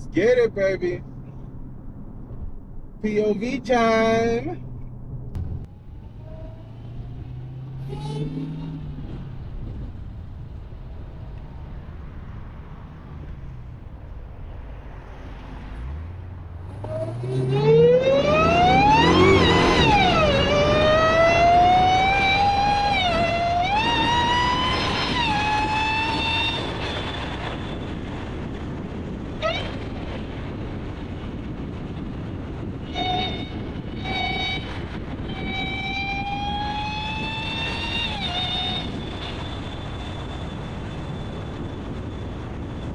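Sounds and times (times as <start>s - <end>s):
high supercharger whine: 0.0s - 42.9s
car engine accelerating: 2.1s - 14.0s, 14.8s - 26.8s.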